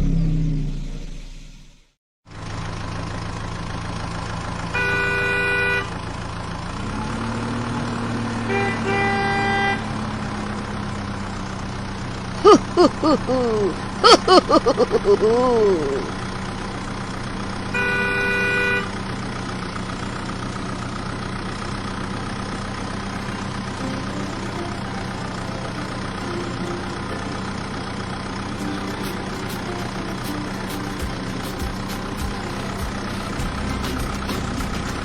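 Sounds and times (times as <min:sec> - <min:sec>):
tractor engine idling: 0:02.3 - 0:06.9, 0:09.9 - 0:35.0
horn honking: 0:04.7 - 0:06.0, 0:08.4 - 0:10.0, 0:17.6 - 0:19.2, 0:22.8 - 0:35.0.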